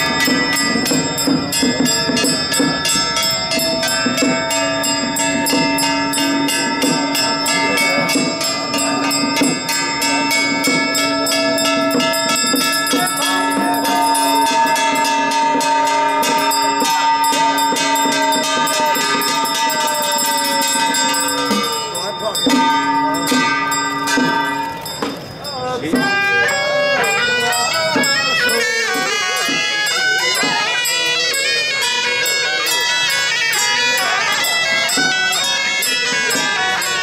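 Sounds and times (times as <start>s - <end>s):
bells ringing: 0.0s - 37.0s
metal percussion clatter: 0.0s - 37.0s.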